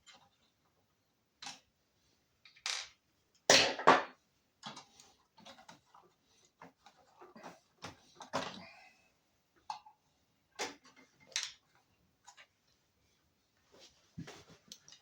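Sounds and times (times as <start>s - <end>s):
small parts clattering: 2.4s - 3.0s.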